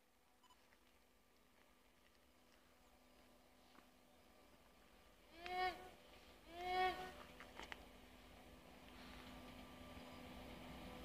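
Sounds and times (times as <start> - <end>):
distant diesel train drone: 0.0 - 11.0.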